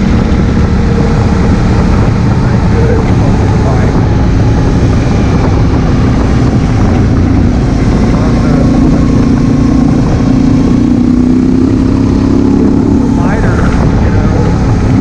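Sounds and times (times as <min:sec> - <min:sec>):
motorcycle engine running: 0:00.0 - 0:15.0
wind noise: 0:00.0 - 0:15.0.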